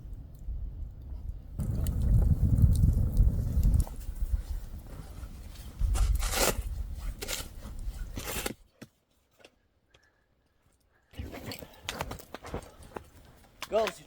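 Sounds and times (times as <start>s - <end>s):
rustling and scraping: 3.8s - 9.6s.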